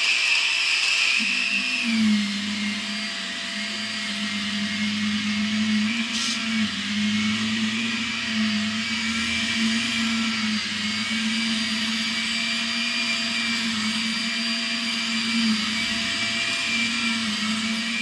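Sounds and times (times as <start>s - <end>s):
vacuum cleaner motor whine: 0.0s - 18.0s
hiss of sucked air: 3.8s - 6.6s.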